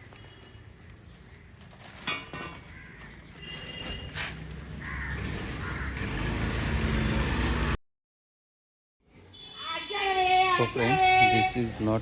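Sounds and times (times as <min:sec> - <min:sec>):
crows cawing: 0:02.4 - 0:03.6, 0:04.7 - 0:06.4.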